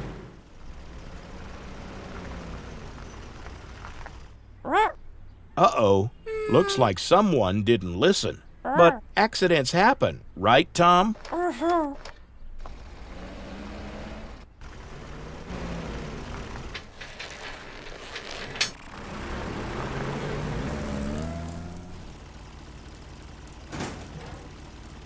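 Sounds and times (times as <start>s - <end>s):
cartoon truck engine: 0.0s - 5.0s, 11.0s - 25.0s.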